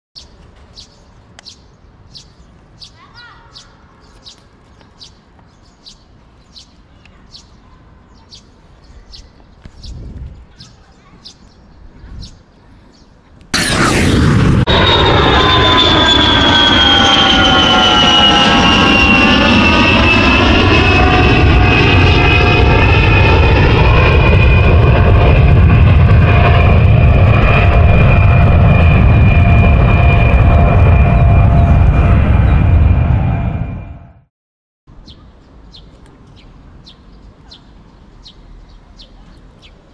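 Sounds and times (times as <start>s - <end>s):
bird chirping: 0.2s - 13.4s, 34.9s - 39.9s
jet engine rumble and whine: 11.7s - 34.3s.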